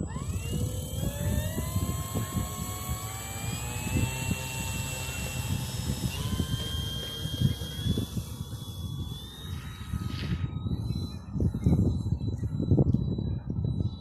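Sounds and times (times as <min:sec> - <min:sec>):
model plane motor whining: 0:00.0 - 0:11.1
wind buffeting microphone: 0:00.0 - 0:14.0.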